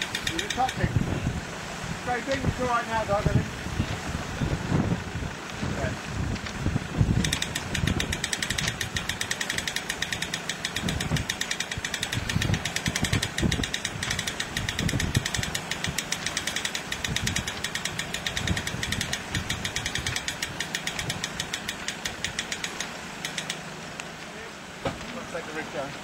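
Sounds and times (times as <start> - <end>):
wind rumbling on microphone: 0.0 - 16.2, 16.8 - 21.5
car engine ticking clatter: 0.0 - 26.0.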